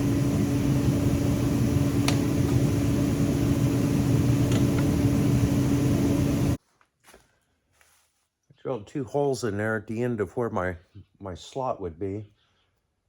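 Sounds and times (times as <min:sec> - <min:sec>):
electric drill boring steel: 0:00.0 - 0:06.6.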